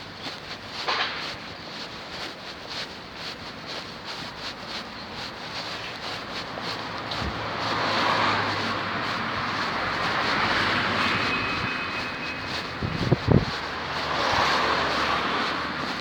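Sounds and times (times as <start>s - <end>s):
vehicle passing: 5.9s - 16.0s.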